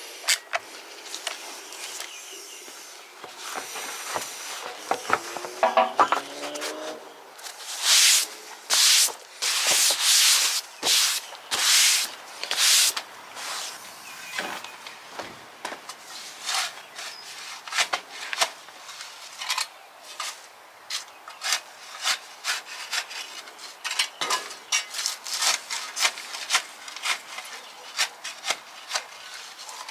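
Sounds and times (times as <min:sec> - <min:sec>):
abrasive rubbing strokes: 0:03.4 - 0:14.6.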